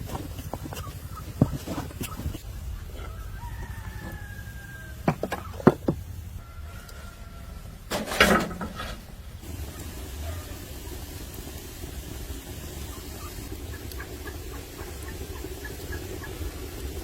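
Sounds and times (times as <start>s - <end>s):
sharp knocks: 5.1s - 6.0s.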